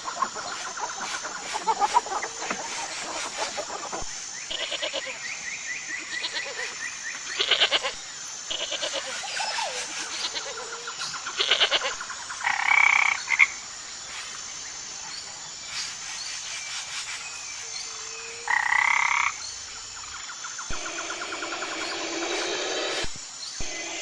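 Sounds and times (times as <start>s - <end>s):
frog croaking: 10.4s - 13.6s, 18.4s - 19.4s.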